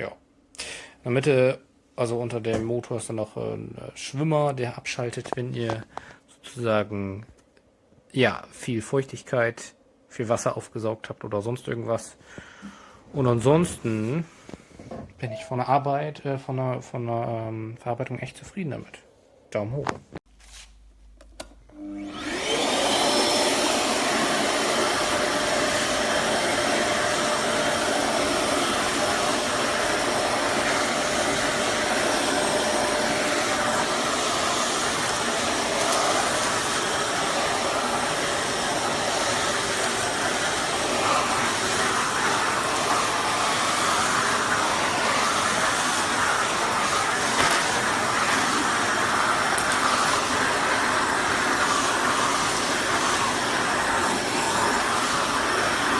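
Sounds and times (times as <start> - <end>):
vacuum cleaner motor running: 21.3 - 55.9.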